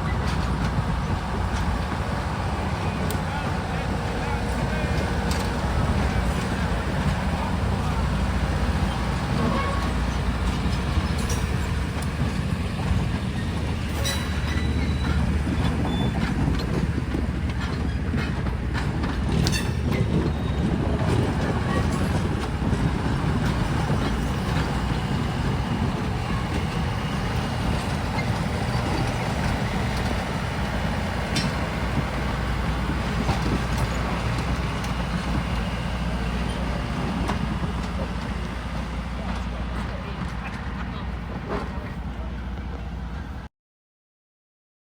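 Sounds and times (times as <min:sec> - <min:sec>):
train rumbling on track: 0:00.0 - 0:43.5
wheel clicks and squeaks: 0:02.6 - 0:38.1.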